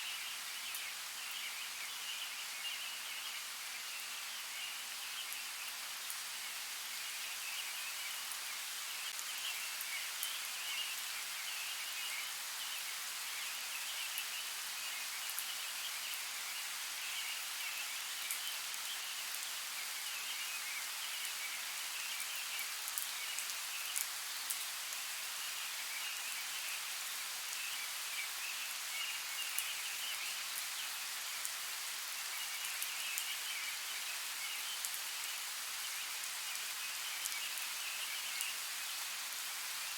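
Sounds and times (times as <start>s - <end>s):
steady rainfall: 0.0s - 39.9s
raindrops ticking on a surface: 7.0s - 11.3s, 13.4s - 39.9s.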